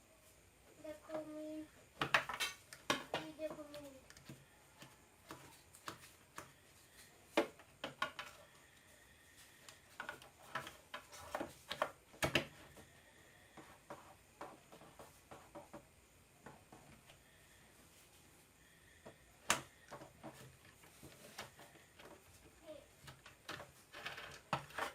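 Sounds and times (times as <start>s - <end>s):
small parts and tools clicking: 23.0s - 24.9s.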